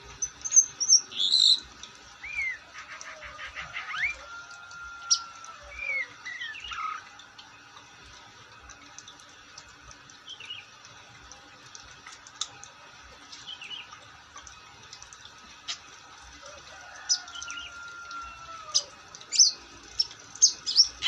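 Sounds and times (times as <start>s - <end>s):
bird whistling song: 0.2s - 1.6s, 2.2s - 2.7s, 5.1s - 7.0s, 18.3s - 19.6s, 20.4s - 21.0s.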